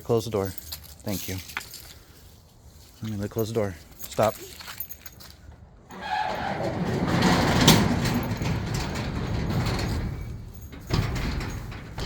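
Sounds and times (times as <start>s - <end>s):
garage door rumbling closed: 5.9s - 12.0s.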